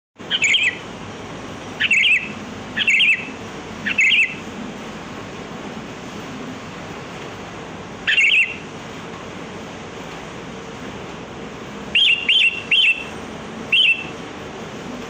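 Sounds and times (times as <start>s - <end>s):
bird warbling call: 0.2s - 0.9s, 1.7s - 4.5s, 8.0s - 8.7s, 11.9s - 14.2s
steady background hiss: 0.2s - 15.0s.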